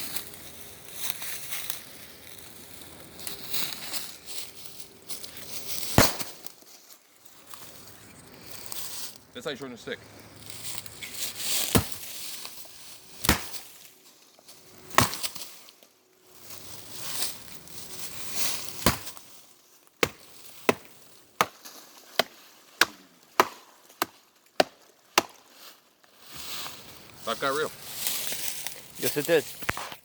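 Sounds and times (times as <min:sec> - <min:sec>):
axe chopping wood: 0:05.9 - 0:06.5, 0:11.6 - 0:12.0, 0:13.2 - 0:13.8, 0:14.9 - 0:15.4, 0:18.8 - 0:19.2, 0:20.0 - 0:25.5.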